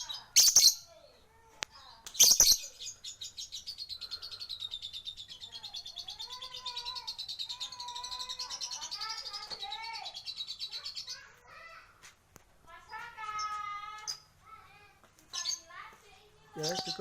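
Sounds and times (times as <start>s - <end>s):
bird chattering trill: 2.2s - 11.3s.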